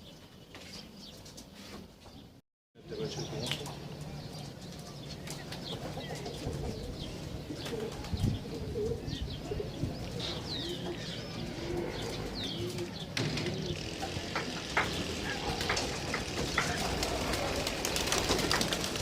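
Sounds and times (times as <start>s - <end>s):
small birds chirping: 0.0s - 19.0s
pigeons cooing: 3.0s - 19.0s.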